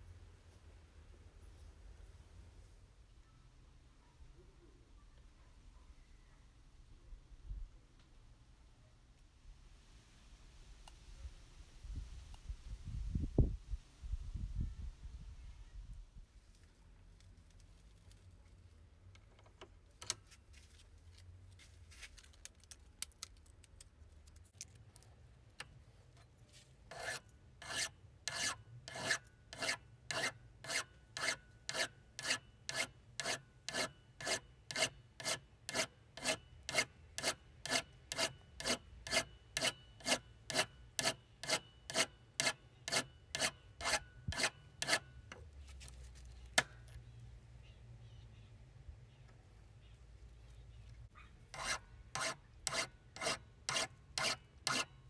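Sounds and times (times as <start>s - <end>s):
rhythmic hand scraping strokes: 26.9s - 45.0s, 51.6s - 54.9s.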